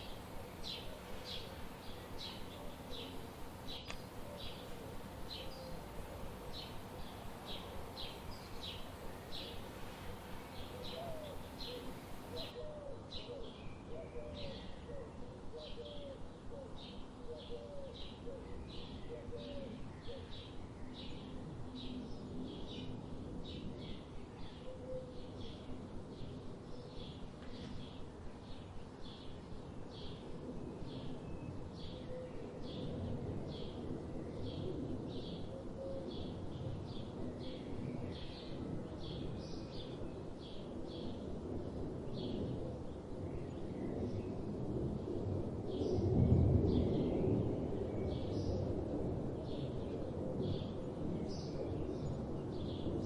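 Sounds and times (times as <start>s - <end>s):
lower hooked bird calls: 0.0s - 12.5s
songbird chirping: 0.0s - 12.6s.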